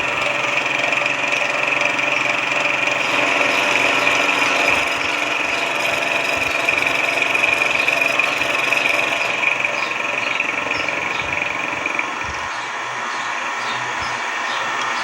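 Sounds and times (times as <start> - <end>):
machine tool high whine: 0.0 - 15.0.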